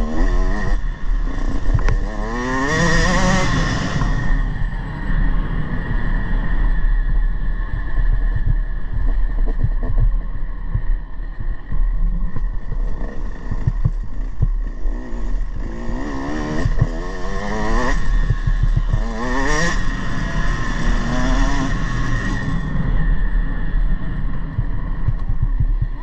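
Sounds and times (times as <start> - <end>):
motorbike engine revving: 0.0 - 6.7, 12.1 - 23.2.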